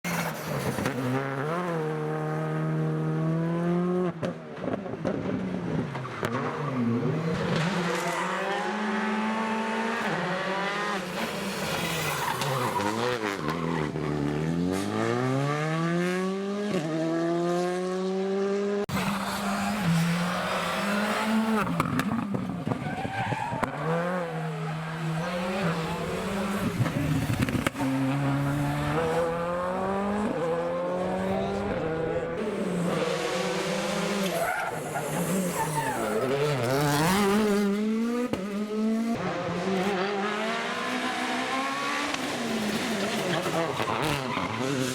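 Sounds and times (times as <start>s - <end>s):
rally car engines at full throttle: 0.0s - 44.9s
tyre squeal: 34.2s - 36.6s, 43.0s - 44.9s.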